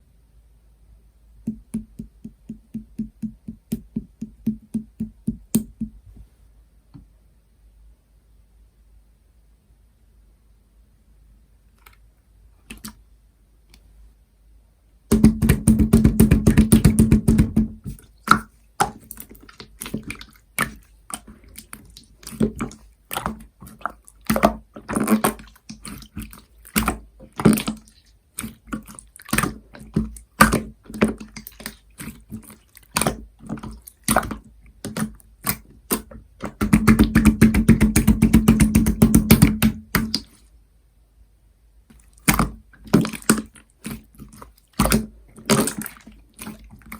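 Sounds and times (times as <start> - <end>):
slime squelching: 1.5 - 6.0, 12.6 - 13.0, 15.1 - 40.5, 41.9 - 46.9.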